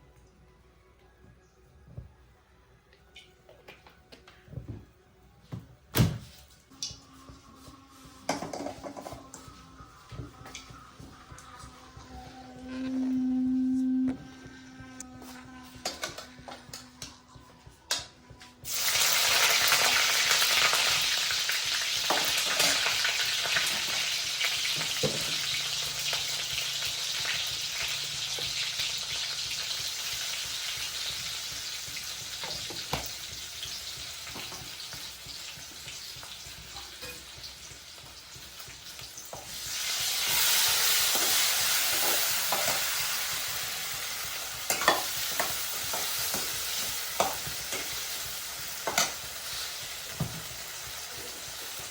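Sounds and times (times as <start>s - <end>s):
food sizzling in hot oil: 18.6s - 51.9s.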